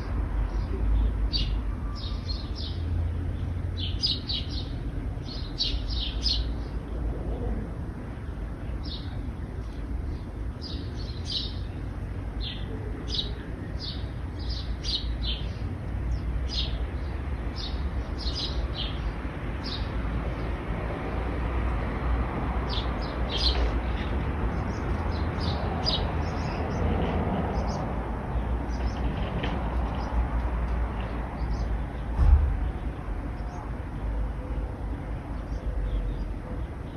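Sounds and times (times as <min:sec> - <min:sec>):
small birds chirping: 0:00.0 - 0:21.2, 0:22.6 - 0:36.9
road traffic rumble: 0:00.0 - 0:36.9
low thump: 0:32.1 - 0:32.7.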